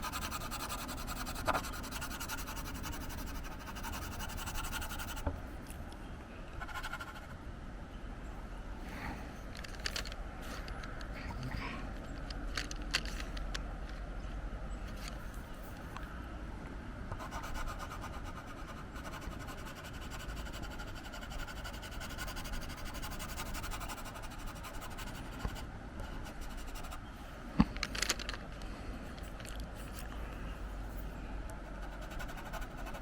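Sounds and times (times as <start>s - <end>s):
pencil scratching on paper: 0.0s - 5.2s, 6.6s - 7.3s, 17.2s - 27.0s, 31.7s - 33.0s.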